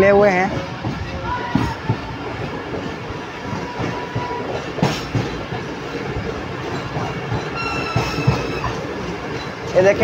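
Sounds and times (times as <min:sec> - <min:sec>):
train rumbling slowly: 0:00.0 - 0:10.0
high wheel squeal: 0:07.6 - 0:08.8.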